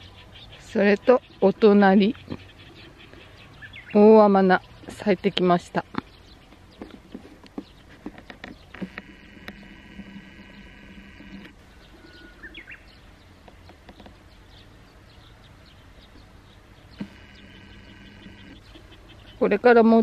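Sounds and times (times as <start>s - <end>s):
bird chirps: 0.0s - 20.0s
steady buzz: 8.6s - 12.6s, 16.8s - 20.0s
short rising bird call: 9.6s - 12.9s.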